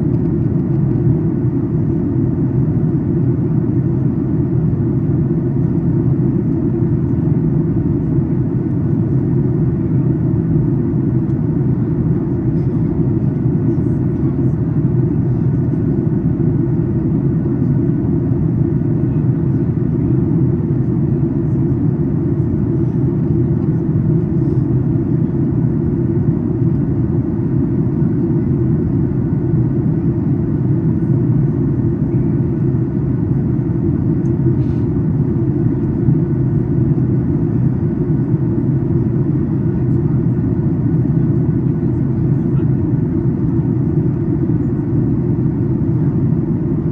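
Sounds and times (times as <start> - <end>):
airliner cabin rumble: 0.0 - 46.9.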